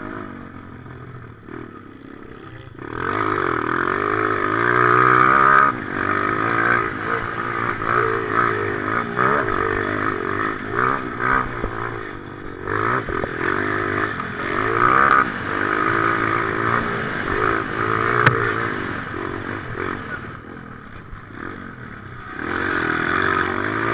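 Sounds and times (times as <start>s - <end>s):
motorcycle engine revving: 0.0s - 23.9s
sharp click: 18.2s - 18.6s.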